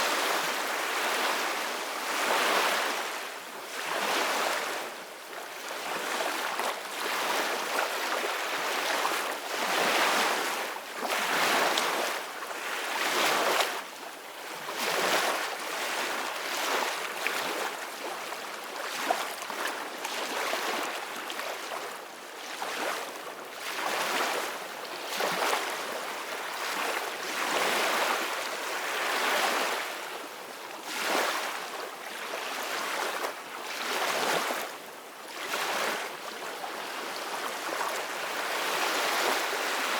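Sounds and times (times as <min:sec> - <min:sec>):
ocean waves breaking on shore: 0:35.3 - 0:39.9.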